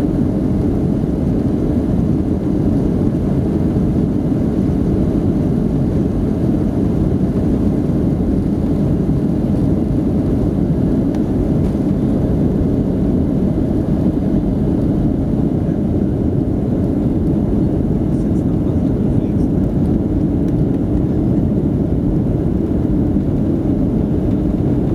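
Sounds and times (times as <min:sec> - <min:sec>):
jet engines rumbling: 0:00.0 - 0:24.9.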